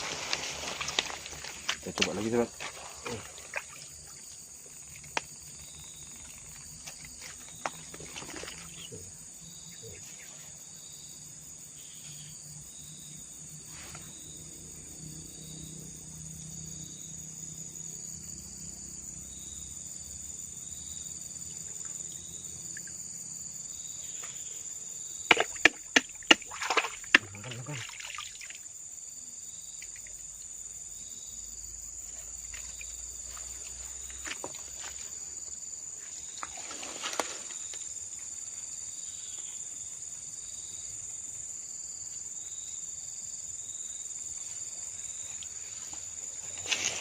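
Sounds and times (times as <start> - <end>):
insect chorus: 0.0 - 47.0.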